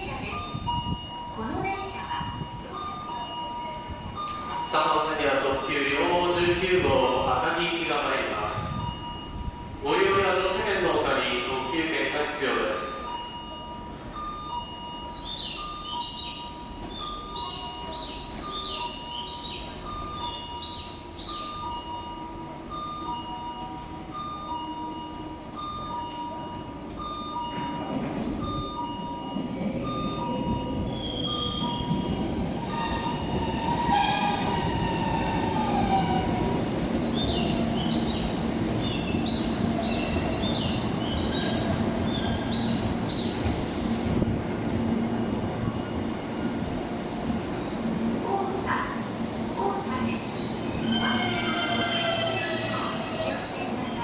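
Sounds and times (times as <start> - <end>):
electric train rumbling: 0.0 - 54.0
wheel or brake squeal: 50.1 - 54.0.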